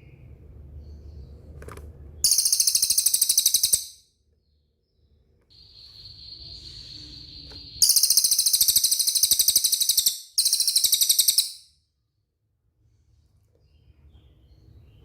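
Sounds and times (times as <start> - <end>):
bird rapid high trill: 2.2 - 4.0, 5.6 - 11.8.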